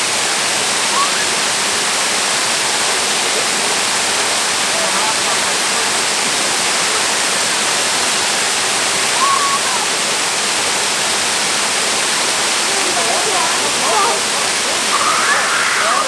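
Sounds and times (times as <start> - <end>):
waterfall rushing: 0.0 - 16.0
faint voice-like call: 12.6 - 16.0.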